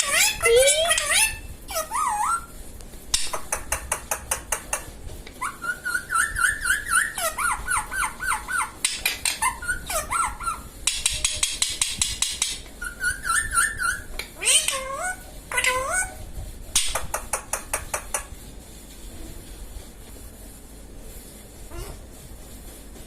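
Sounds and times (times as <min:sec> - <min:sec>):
parrot chirping calls: 0:00.0 - 0:02.6, 0:03.2 - 0:18.3
parrot rapid clicks: 0:03.1 - 0:04.9, 0:16.7 - 0:18.3.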